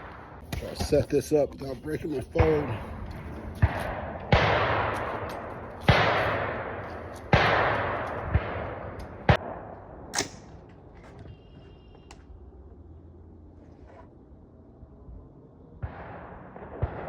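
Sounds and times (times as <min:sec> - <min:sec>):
rolling echo of gunshots: 0:02.1 - 0:10.7, 0:15.7 - 0:17.0
rifle shots: 0:02.4 - 0:10.9, 0:15.8 - 0:17.0.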